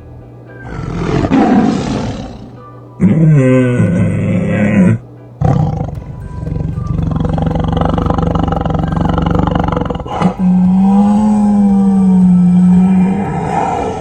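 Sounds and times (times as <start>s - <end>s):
background music: 0.0s - 14.0s
tiger roaring and growling: 0.6s - 14.0s.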